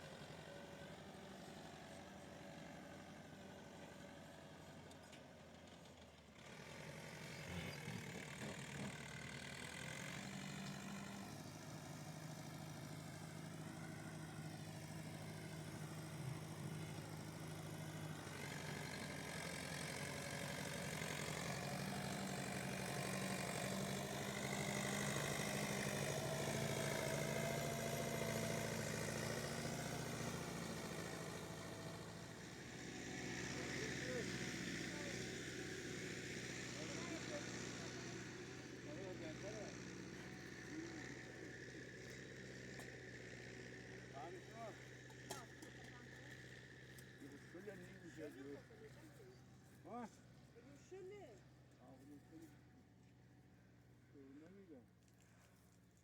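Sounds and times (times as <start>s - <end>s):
tractor engine running: 8.0s - 48.1s.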